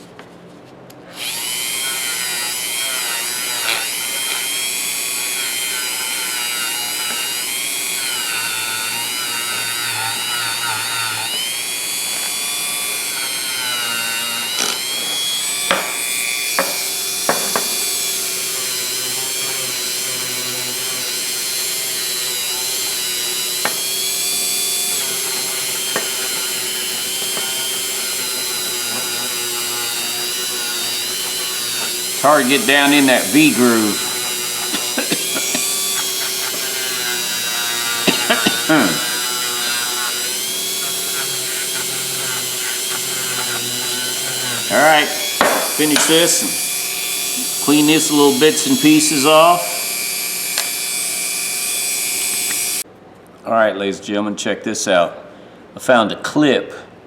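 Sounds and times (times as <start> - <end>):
wire wheel brush scrubbing metal: 20.8 - 49.8.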